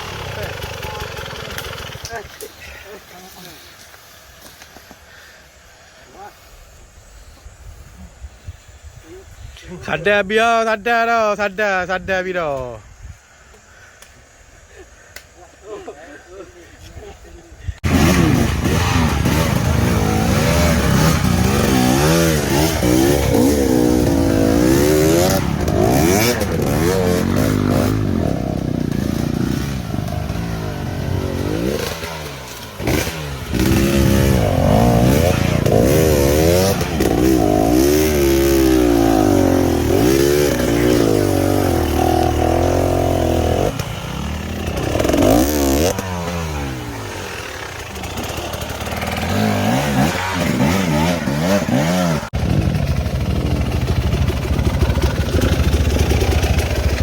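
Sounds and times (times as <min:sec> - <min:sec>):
dirt bike engine revving: 0:00.0 - 0:02.2, 0:17.8 - 0:57.0.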